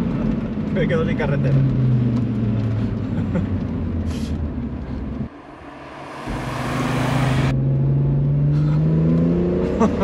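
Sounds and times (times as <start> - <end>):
car engine revving: 0.0 - 10.0
rushing noise: 4.3 - 8.1.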